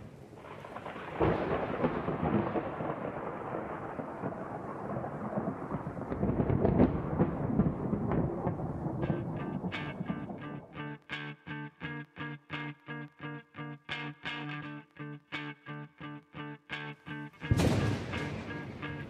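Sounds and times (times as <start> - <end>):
thunder rumbling: 0.4 - 10.6, 17.4 - 19.0.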